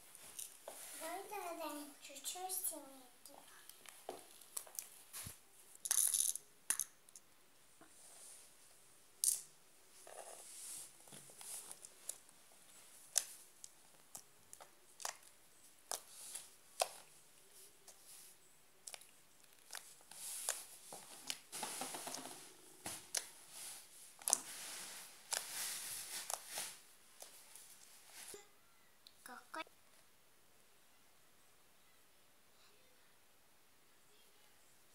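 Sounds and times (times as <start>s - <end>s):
slime crackling: 13.0s - 17.1s.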